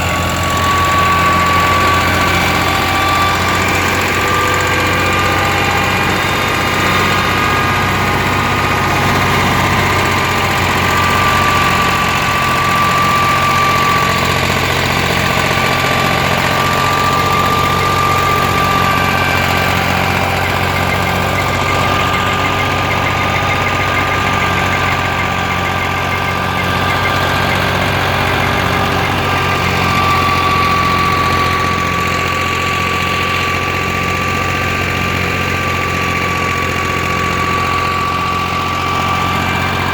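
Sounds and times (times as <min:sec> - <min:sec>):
thresher high whine: 0:00.0 - 0:39.9
tractor diesel engine running: 0:00.0 - 0:39.9.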